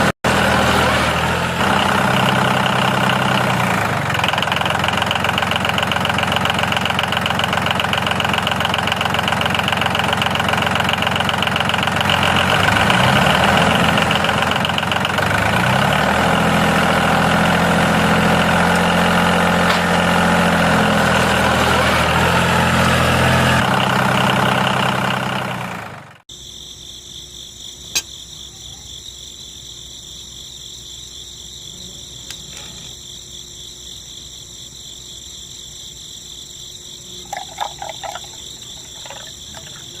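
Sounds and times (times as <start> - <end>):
insects chirring: 26.3 - 40.0.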